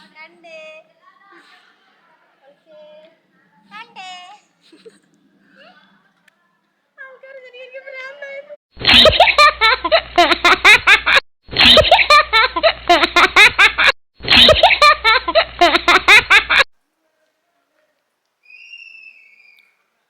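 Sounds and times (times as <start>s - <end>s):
high-pitched giggling laughter: 8.8s - 16.7s.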